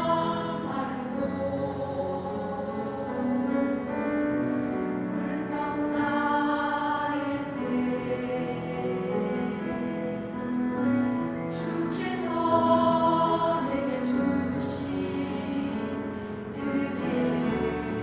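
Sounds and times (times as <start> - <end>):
choir singing a hymn: 0.0 - 18.0.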